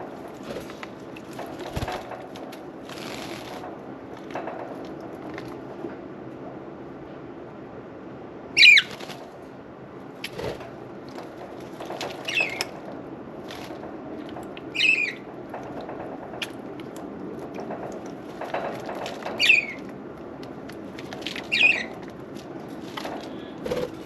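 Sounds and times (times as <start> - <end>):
budgerigars chirping: 8.6 - 8.9, 14.8 - 15.2, 19.4 - 19.8, 21.5 - 21.9.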